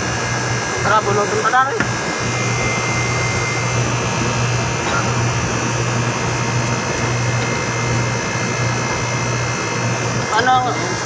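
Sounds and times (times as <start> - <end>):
air conditioner airflow rush: 0.0 - 11.0
low hum: 2.2 - 10.3.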